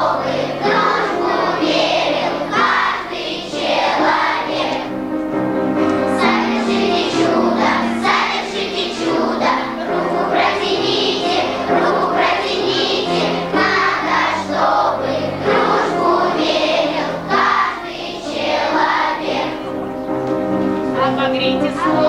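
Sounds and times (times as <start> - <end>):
children's choir singing: 0.0 - 22.0.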